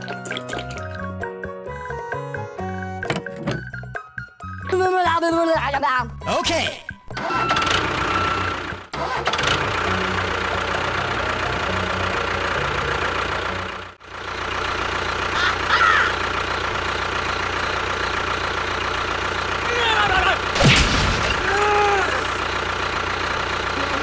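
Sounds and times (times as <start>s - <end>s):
engine running steadily: 7.1s - 24.0s.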